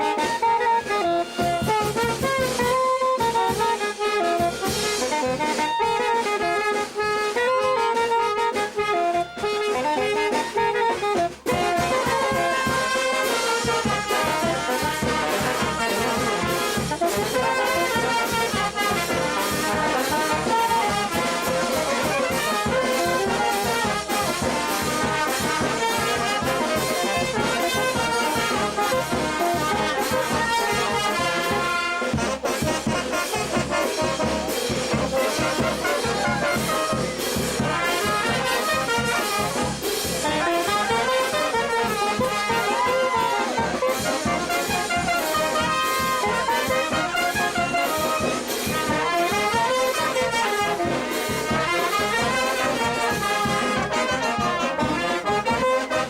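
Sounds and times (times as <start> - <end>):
trumpets and trombones melody: 0.0 - 56.0
steady drum beat: 1.0 - 56.0.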